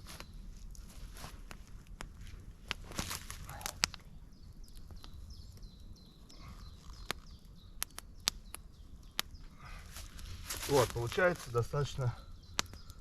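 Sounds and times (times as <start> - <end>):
low outdoor rumble: 0.0 - 13.0
songbird chirping: 0.0 - 13.0
sharp irregular clicks: 3.6 - 9.4, 12.5 - 13.0.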